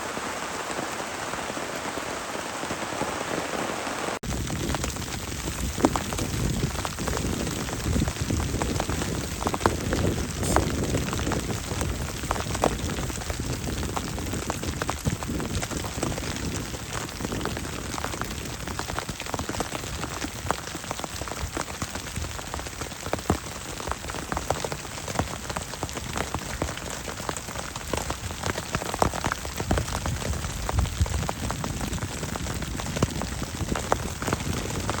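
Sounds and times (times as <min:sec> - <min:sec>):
heavy rain falling: 0:00.0 - 0:35.0
sharp raindrop impacts: 0:00.0 - 0:35.0.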